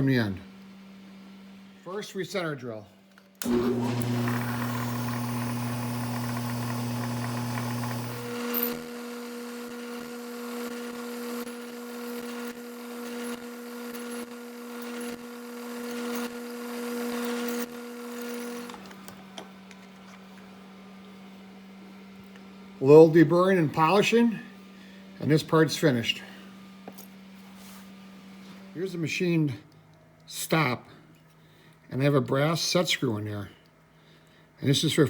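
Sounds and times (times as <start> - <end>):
drill cutting aluminum: 3.4 - 18.9
milling machine spindle running: 3.4 - 18.9.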